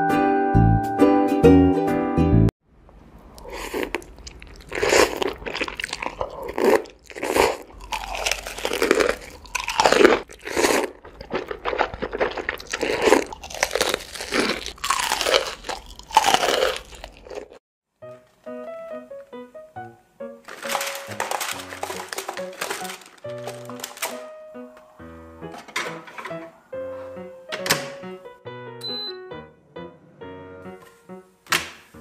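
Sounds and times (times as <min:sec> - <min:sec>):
chewing: 0:03.3 - 0:17.6
slurping noodles: 0:03.3 - 0:17.6
light music: 0:18.0 - 0:32.0.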